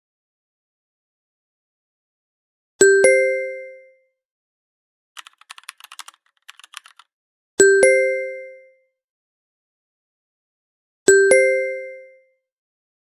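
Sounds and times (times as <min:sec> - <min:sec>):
keyboard typing clicks: 0:05.2 - 0:07.0.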